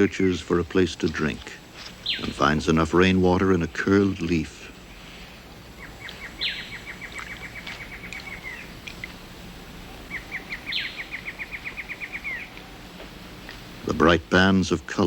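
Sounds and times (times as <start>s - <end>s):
bird rapid trill: 1.9s - 2.9s, 5.7s - 12.8s.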